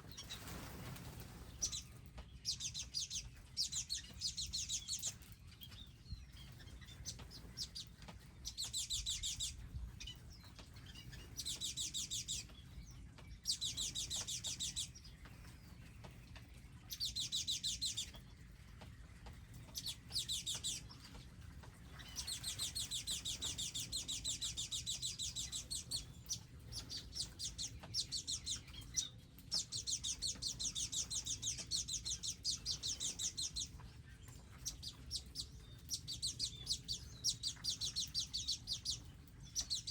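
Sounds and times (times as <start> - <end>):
songbird singing fast trills: 34.6 - 39.9.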